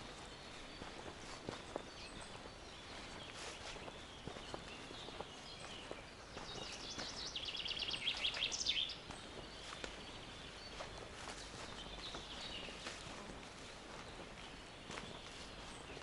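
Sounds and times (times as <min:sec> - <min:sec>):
songbird singing a fast trill: 0:00.0 - 0:13.0
faint footsteps on forest path: 0:00.0 - 0:16.0.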